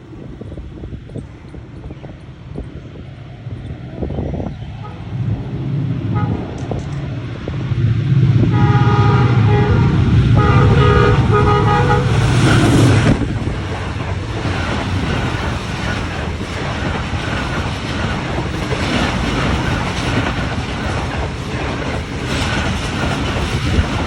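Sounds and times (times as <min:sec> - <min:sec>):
train rumbling past: 0:00.0 - 0:24.0
train horn blasts: 0:04.8 - 0:05.2, 0:06.1 - 0:06.9, 0:08.4 - 0:13.2.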